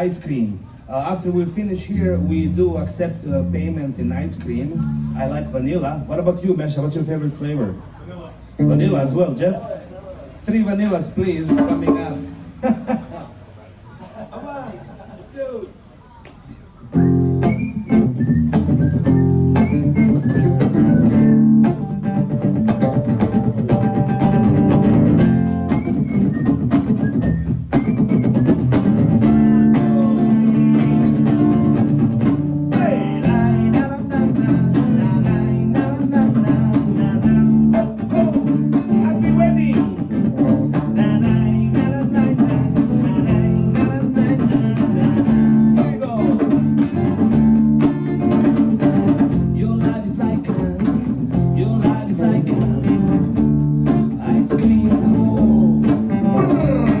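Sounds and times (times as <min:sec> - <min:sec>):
bass guitar: 0:00.0 - 0:09.8, 0:10.8 - 0:12.9, 0:16.7 - 0:57.0
guitar: 0:00.0 - 0:13.0, 0:16.3 - 0:57.0
drum kit: 0:11.2 - 0:12.6, 0:16.9 - 0:57.0.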